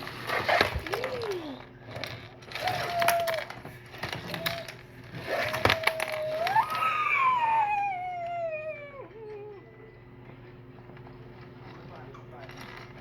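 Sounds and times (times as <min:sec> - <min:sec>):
plastic pieces clicking: 0:00.5 - 0:06.9.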